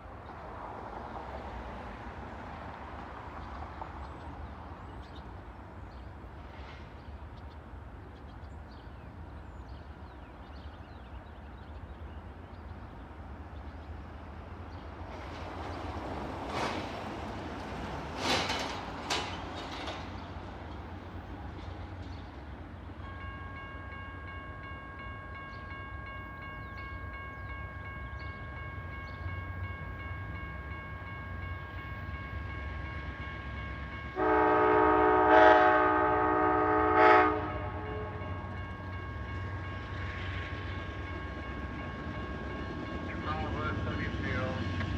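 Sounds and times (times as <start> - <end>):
train rumbling: 0.0 - 44.9
locomotive air horn blast: 34.2 - 38.4.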